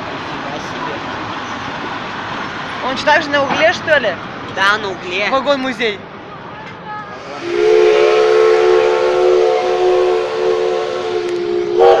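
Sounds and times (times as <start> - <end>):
locomotive whistle blast: 7.2 - 12.0.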